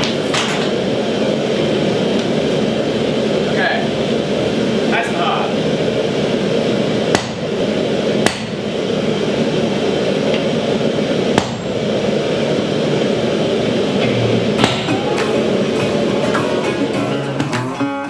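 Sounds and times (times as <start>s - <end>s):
steady rushing background noise: 0.0s - 18.0s
hammer blows on steel anvil: 14.6s - 17.7s.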